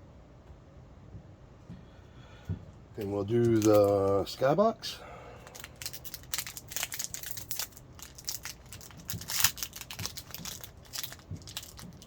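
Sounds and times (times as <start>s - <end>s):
wrapper crinkling: 3.0s - 4.6s, 5.4s - 12.0s.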